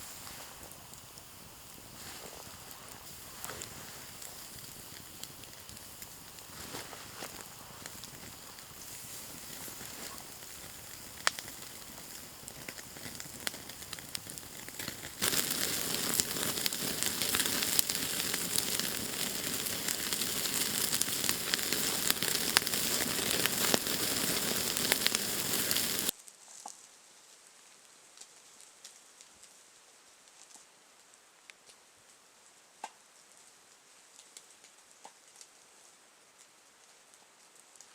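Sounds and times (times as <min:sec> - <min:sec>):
food sizzling in a pan: 0:00.0 - 0:26.1.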